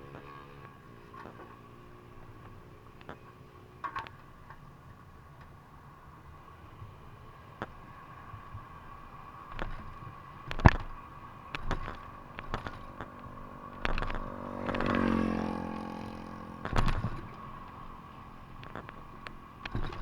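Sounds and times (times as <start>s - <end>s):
motorcycle engine passing: 9.3s - 20.0s
sharp knocks and clicks: 9.5s - 20.0s.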